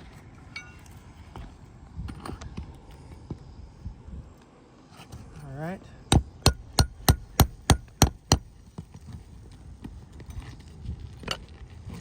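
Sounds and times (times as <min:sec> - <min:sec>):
hammer striking metal tool: 0:06.1 - 0:08.5.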